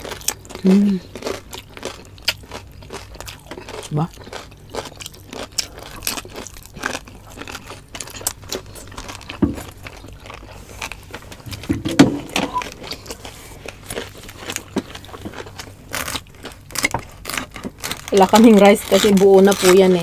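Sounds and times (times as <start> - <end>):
crunchy chewing: 0.0 - 20.0
low thump: 11.5 - 12.5.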